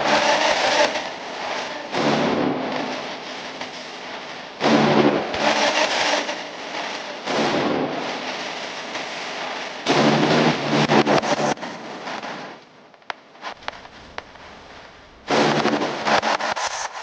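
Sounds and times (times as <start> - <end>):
machine hum: 13.5 - 16.3.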